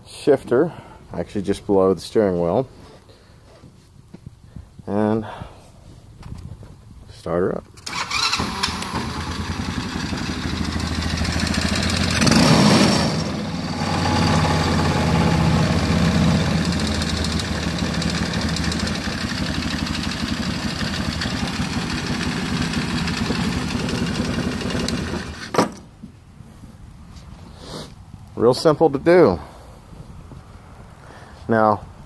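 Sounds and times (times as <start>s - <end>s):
small engine starting and idling: 7.8s - 25.6s.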